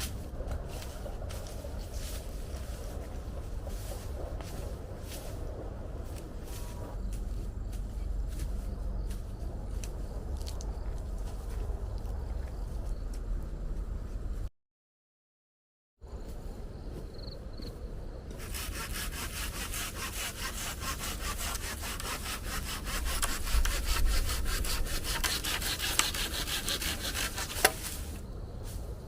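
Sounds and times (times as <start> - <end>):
saw cutting through wood: 18.3 - 28.1.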